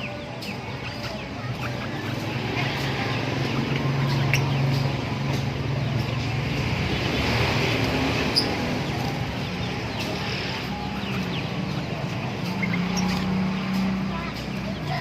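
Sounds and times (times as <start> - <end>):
background traffic noise: 0.0 - 15.0
high bird chirps: 8.1 - 15.0.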